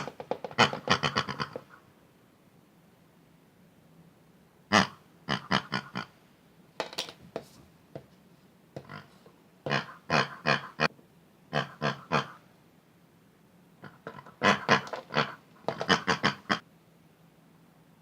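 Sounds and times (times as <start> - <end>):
pig-like oinking grunts: 0.0 - 1.8, 4.7 - 6.2, 8.8 - 10.9, 11.5 - 12.4, 13.8 - 16.7.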